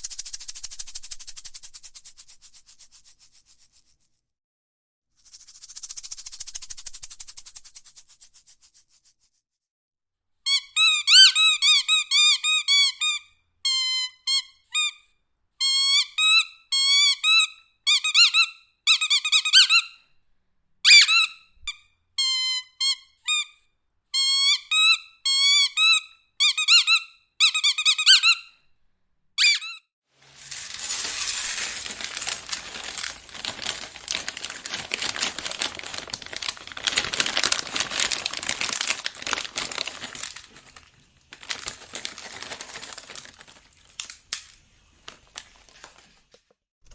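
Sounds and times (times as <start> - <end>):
shaker rattle: 0.0 - 4.3, 5.2 - 9.6, 30.2 - 43.0
squeaky dog toy: 10.5 - 15.0, 15.6 - 20.0, 20.8 - 28.6, 29.4 - 29.9
bag crinkling: 30.2 - 46.9.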